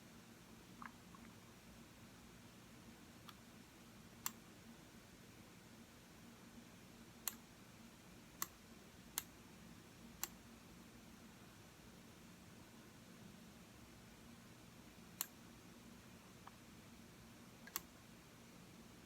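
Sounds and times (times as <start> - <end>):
faint room hum: 0.0 - 19.0
computer mouse clicks: 15.2 - 15.4, 17.6 - 17.9.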